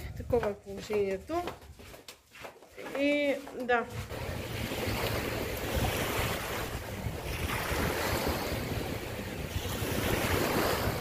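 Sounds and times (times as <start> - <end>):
wind buffeting microphone: 0.0 - 1.9, 3.0 - 11.0
sea waves washing: 3.9 - 11.0.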